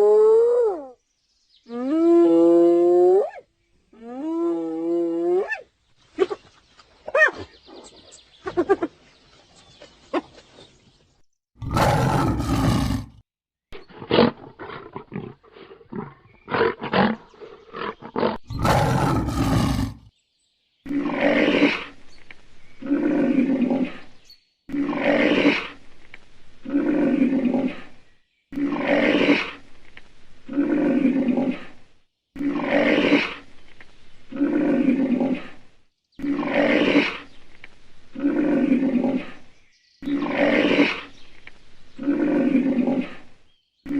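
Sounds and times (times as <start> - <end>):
large animal roaring: 11.6 - 13.2, 17.8 - 20.1, 22.8 - 24.1, 26.6 - 28.0, 30.5 - 31.8, 42.0 - 43.3.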